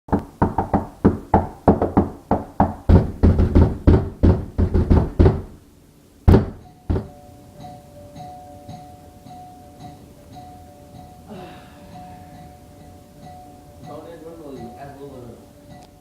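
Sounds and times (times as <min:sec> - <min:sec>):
fast repeated knocking: 0:00.1 - 0:05.6, 0:06.3 - 0:07.2
loud single knocks: 0:00.1 - 0:05.6, 0:06.3 - 0:07.2
music with held tone: 0:06.4 - 0:16.0.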